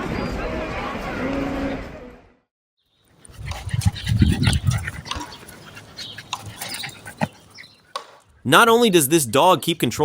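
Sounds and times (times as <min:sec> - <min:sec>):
dog making low vocal sounds: 0:03.3 - 0:07.8.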